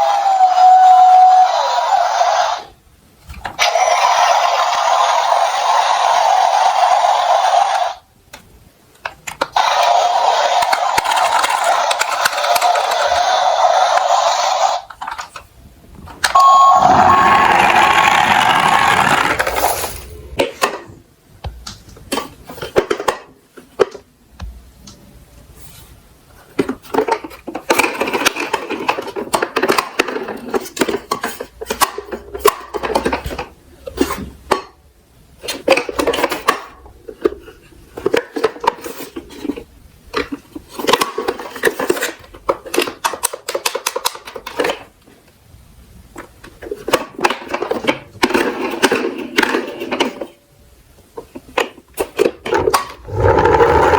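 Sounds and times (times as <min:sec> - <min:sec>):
plastic toy trucks rattling: 0:09.0 - 0:14.1, 0:17.6 - 0:20.9, 0:26.4 - 0:34.8, 0:35.4 - 0:45.0, 0:46.1 - 0:50.4, 0:51.2 - 0:53.9.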